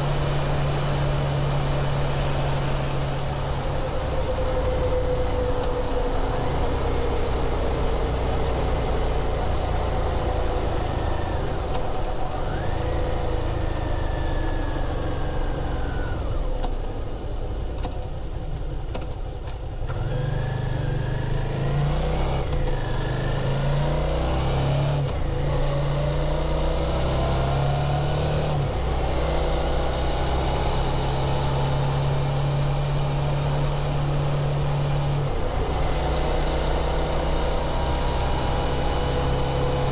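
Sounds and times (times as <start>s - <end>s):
motorcycle engine revving: 19.9s - 39.9s.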